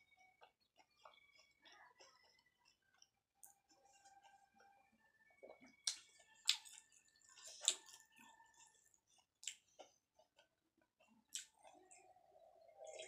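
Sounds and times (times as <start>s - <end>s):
closed-mouth chewing: 0.4s - 4.4s, 5.5s - 12.0s
wet mouth clicks: 5.8s - 6.8s, 7.6s - 8.0s, 9.4s - 9.7s, 11.3s - 11.6s.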